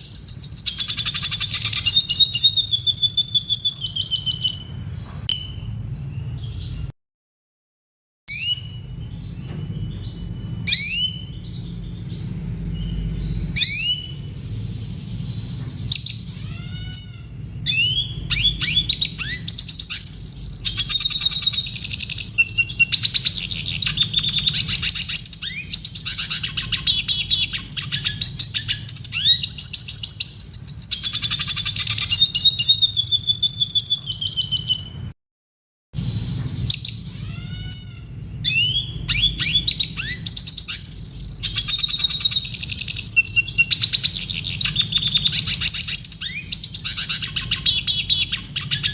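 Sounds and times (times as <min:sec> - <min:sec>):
bird singing whistles and trills: 0:00.0 - 0:06.9, 0:08.3 - 0:35.2, 0:36.6 - 0:48.9
steady low hum: 0:08.6 - 0:30.3.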